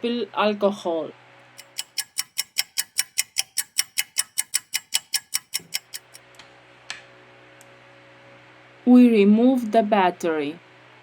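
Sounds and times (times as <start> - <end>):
rapid clock-like ticking: 1.6 - 6.2.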